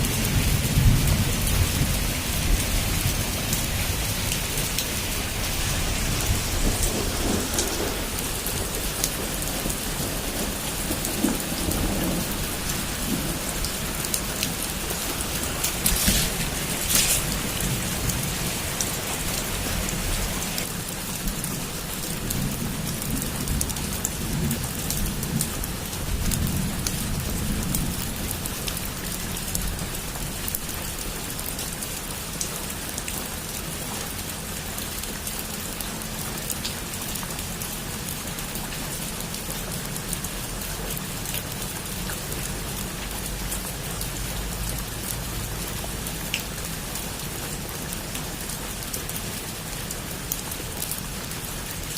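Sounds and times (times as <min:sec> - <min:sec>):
heavy rain on a roof: 0:00.0 - 0:51.9
distant thunder rumble: 0:05.3 - 0:20.5.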